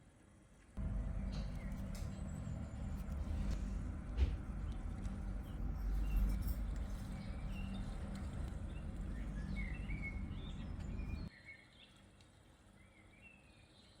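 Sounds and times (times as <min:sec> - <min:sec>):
low rumble: 0:00.8 - 0:11.3
small birds chirping: 0:04.6 - 0:12.0.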